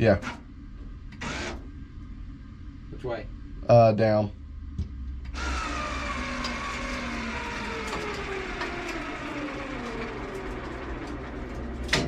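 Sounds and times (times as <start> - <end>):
electric actuator motor whine: 5.2 - 12.0.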